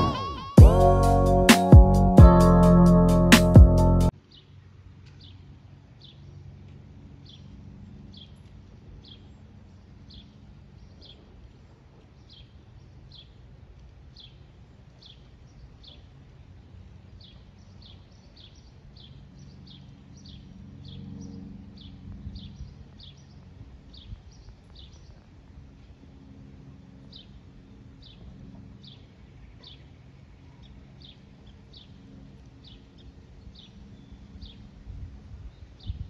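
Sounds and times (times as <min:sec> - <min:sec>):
low steady rumble: 0:00.6 - 0:04.1.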